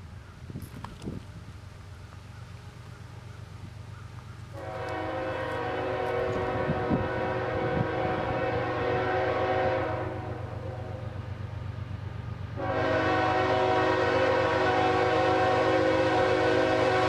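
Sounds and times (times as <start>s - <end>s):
locomotive air horn blast: 4.5s - 11.1s, 12.6s - 17.0s.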